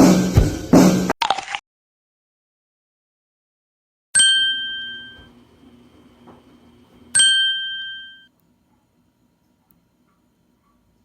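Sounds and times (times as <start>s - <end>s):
bright bell-like ding: 4.2s - 5.3s, 7.2s - 8.3s.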